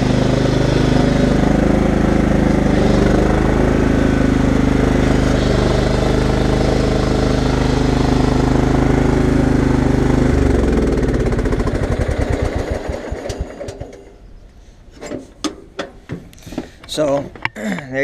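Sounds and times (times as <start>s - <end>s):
riding mower engine running: 0.0s - 14.2s.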